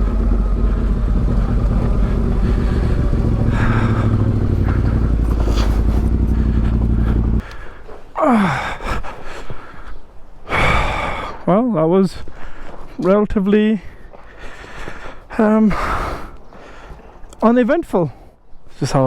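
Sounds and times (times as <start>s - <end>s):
motorcycle engine running: 0.0s - 7.4s
sound falling steeply in pitch: 0.0s - 7.4s.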